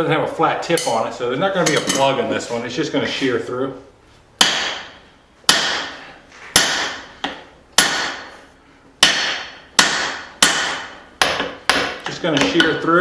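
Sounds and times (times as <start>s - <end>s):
hammer striking steel punch: 4.4s - 6.0s, 6.6s - 8.3s, 9.0s - 12.8s.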